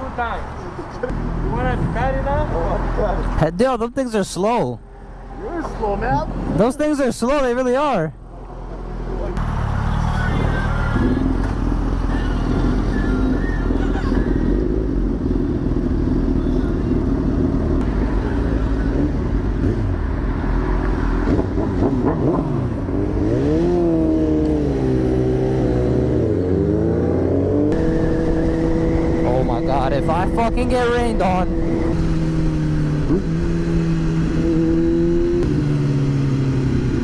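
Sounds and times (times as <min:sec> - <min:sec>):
motorcycle engine running: 0:08.4 - 0:20.2.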